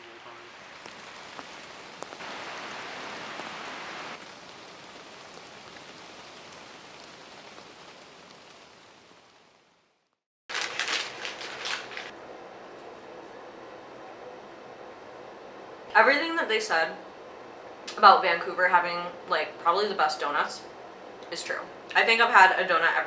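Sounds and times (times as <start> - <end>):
low steady hiss: 0.0 - 10.0
rain pattering: 0.0 - 12.1.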